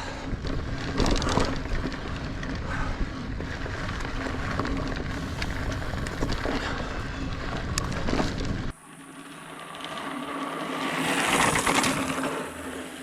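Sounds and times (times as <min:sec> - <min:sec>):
wind buffeting microphone: 0:00.0 - 0:08.8
bike clicks and rattles: 0:00.0 - 0:13.0
bike tyre noise on dirt: 0:00.0 - 0:13.0.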